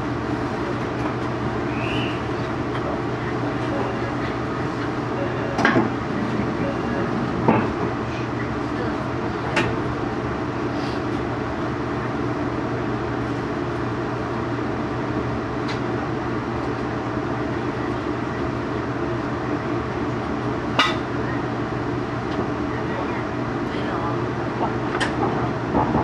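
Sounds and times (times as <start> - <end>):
train equipment humming: 0.0 - 26.0.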